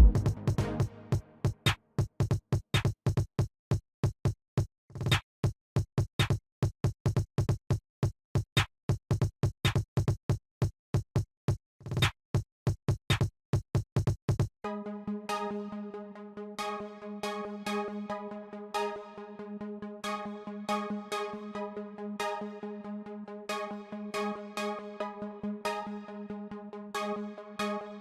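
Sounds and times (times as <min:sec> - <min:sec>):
electronic music with drum-machine beat: 0:00.0 - 0:01.2, 0:14.7 - 0:28.0.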